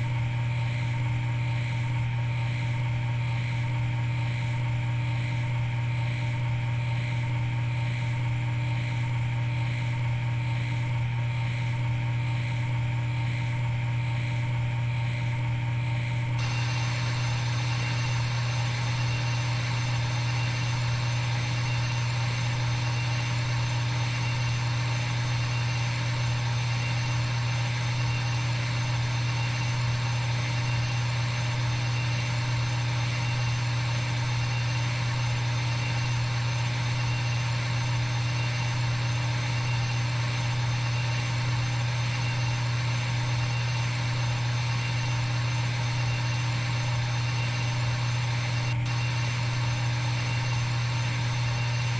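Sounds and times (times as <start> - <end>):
steady machine hum: 16.4 - 51.9.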